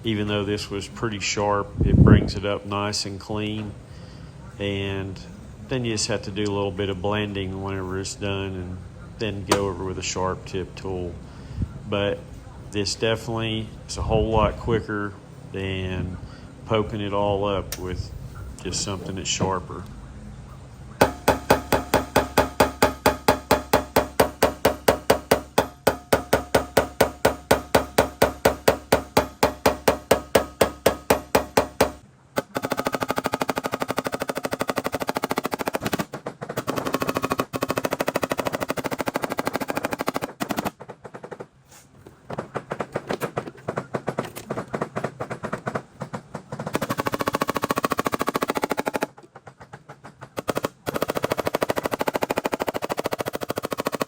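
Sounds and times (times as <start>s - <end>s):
dent repair tool hammering panel: 21.0s - 41.4s, 42.4s - 49.2s.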